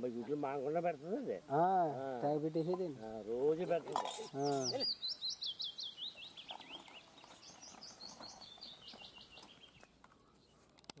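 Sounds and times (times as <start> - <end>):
small bird chirping: 2.2 - 10.7.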